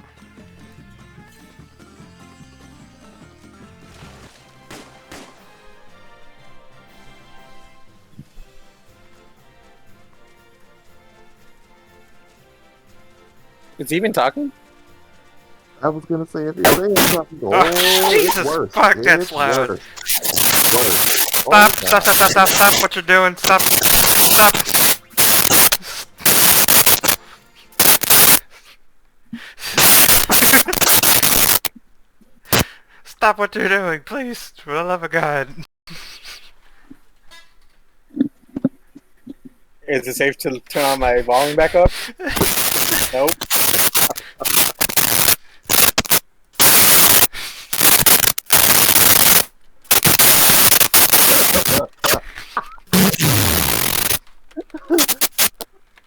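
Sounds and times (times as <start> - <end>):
distorted microphone noise blasts: 16.6 - 27.2, 27.8 - 28.4, 29.8 - 31.7, 42.3 - 52.2, 52.9 - 54.2, 54.9 - 55.6.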